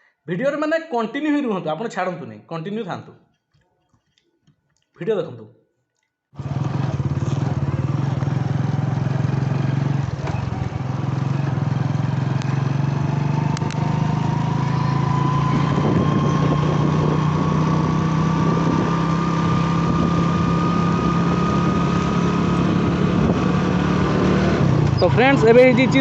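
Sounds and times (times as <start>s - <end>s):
motorcycle engine running: 6.4s - 26.0s
high whine rising in pitch: 14.2s - 24.0s.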